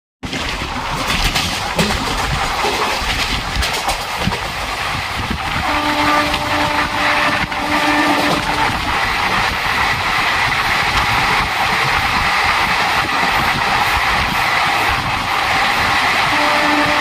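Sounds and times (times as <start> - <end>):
clattering train wheels: 0.2 - 17.0
trains passing with rail noise: 0.2 - 17.0
locomotive horn blasts: 5.6 - 8.8, 16.3 - 17.0.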